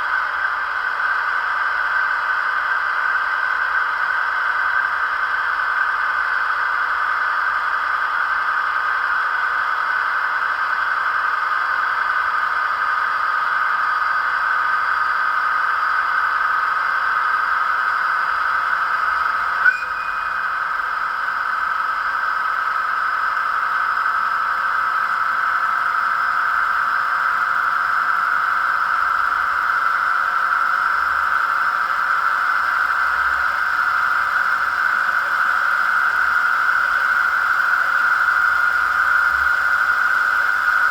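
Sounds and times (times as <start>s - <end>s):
diesel locomotive engine sound: 0.0s - 40.9s.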